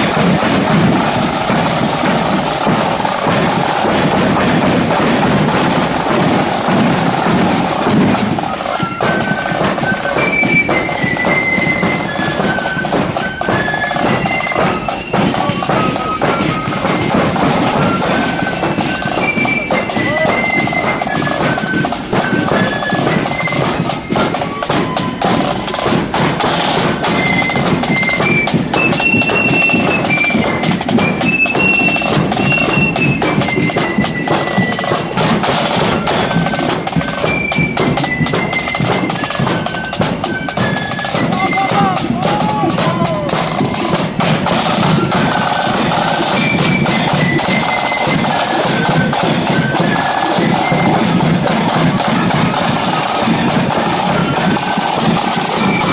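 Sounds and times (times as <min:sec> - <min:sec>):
flutes playing melody: 0:00.0 - 0:55.9
snare drum: 0:00.0 - 0:55.9
bass drum beats: 0:41.2 - 0:45.1.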